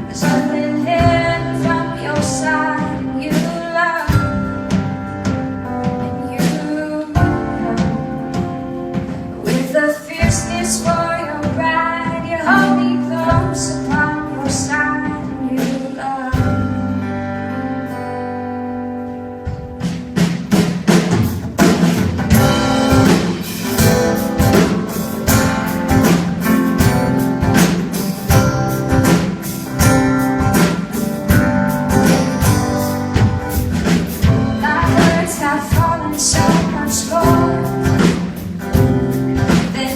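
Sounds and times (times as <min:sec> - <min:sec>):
woman singing: 0:00.0 - 0:05.0, 0:05.7 - 0:18.2, 0:34.2 - 0:39.9
drum kit: 0:00.0 - 0:18.0, 0:18.8 - 0:39.9
guitar: 0:00.0 - 0:39.9.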